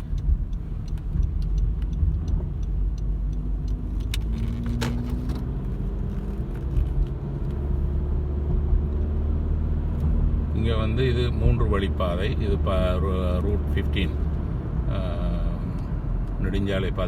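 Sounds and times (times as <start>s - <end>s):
faint ticks and clicks: 0.0s - 4.3s
car engine and tyre rumble: 0.0s - 17.0s.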